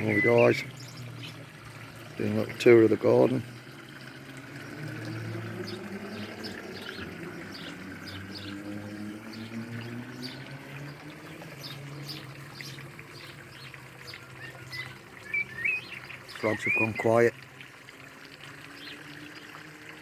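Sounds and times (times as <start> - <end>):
small birds chirping: 0.0 - 4.2, 5.2 - 17.4.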